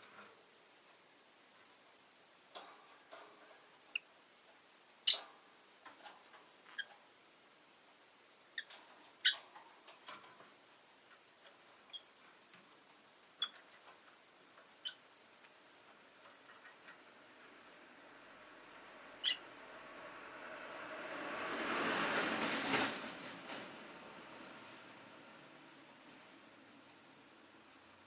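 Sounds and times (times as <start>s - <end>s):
passing road vehicle: 17.4s - 25.4s
lovebirds chirping: 19.2s - 19.5s.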